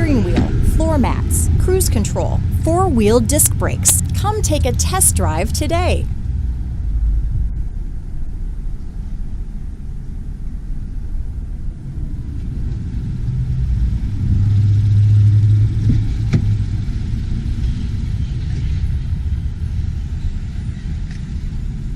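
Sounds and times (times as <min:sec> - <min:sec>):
vehicle engine rumbling: 0:00.0 - 0:09.7.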